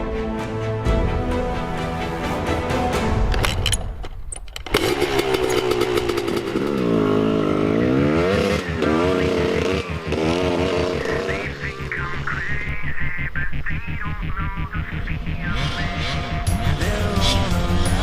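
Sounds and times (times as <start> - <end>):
dirt bike engine revving: 4.6 - 18.0.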